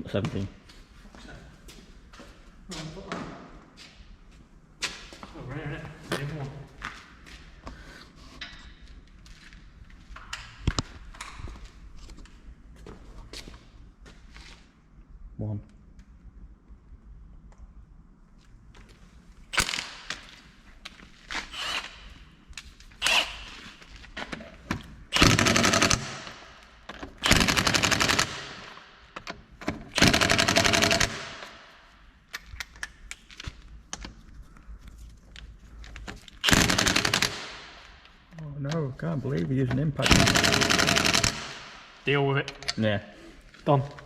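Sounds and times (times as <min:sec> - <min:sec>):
impact wrench hammering: 0:25.2 - 0:26.4, 0:27.2 - 0:28.8, 0:29.8 - 0:31.6, 0:36.4 - 0:37.6, 0:40.0 - 0:41.8.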